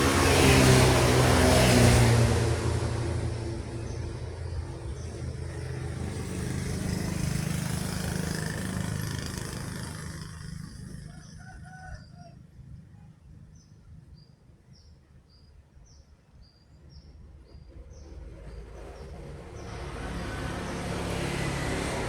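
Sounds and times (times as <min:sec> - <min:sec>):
truck engine passing by: 0:00.0 - 0:12.0, 0:17.2 - 0:22.0
rooster crowing faintly: 0:11.0 - 0:12.5.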